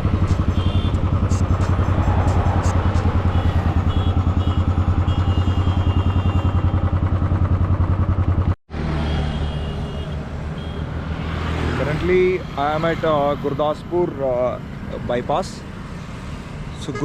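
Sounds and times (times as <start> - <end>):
motorcycle engine running: 0.0 - 8.6
smooth vehicle sound: 0.0 - 17.0.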